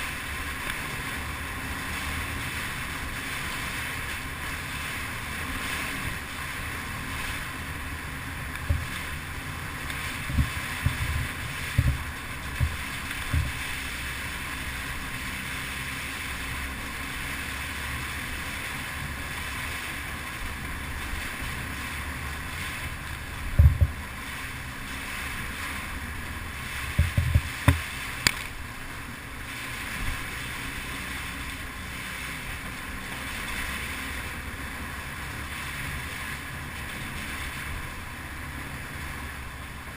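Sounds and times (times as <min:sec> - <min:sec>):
wind noise: 0:00.0 - 0:38.2
low thumps from bumps: 0:08.4 - 0:09.0, 0:10.2 - 0:13.8, 0:23.5 - 0:24.0, 0:26.9 - 0:27.9.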